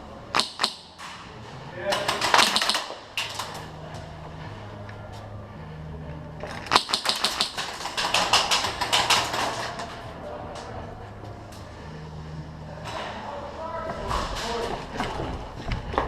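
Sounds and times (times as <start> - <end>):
airsoft gun shots: 0.3 - 1.1, 2.0 - 3.0, 6.7 - 9.4.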